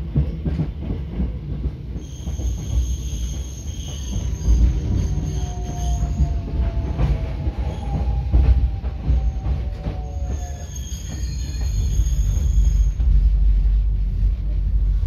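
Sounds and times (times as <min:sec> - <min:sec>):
train rumbling: 0:00.0 - 0:15.0
wheels squealing against rails: 0:01.9 - 0:13.6.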